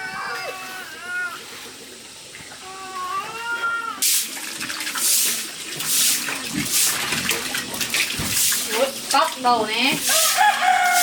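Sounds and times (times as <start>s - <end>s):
water sloshing: 4.1s - 11.0s.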